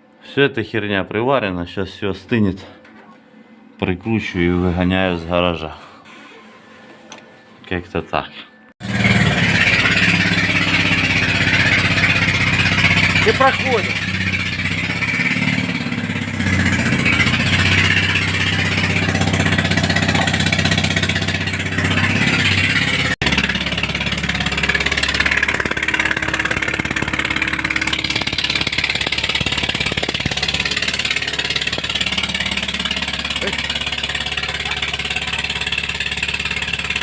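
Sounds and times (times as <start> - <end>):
car engine running: 8.8 - 37.0.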